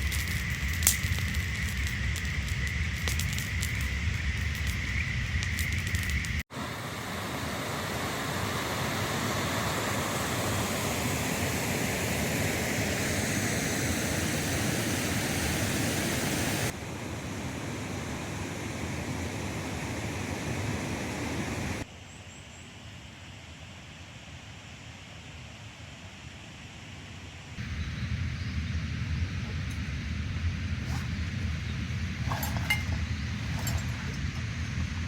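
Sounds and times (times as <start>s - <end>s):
river rushing: 6.6s - 13.3s.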